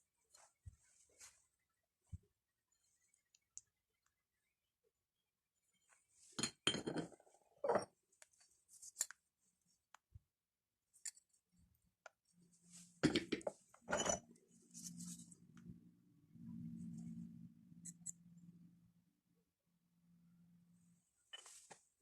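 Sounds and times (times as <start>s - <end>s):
low steady hum: 13.9s - 19.2s.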